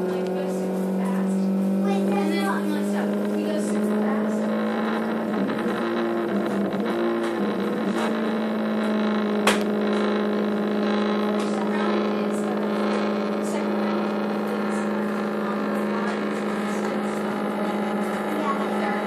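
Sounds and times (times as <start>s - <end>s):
stepper motor humming: 0.0s - 19.0s
sharp click: 9.4s - 10.1s.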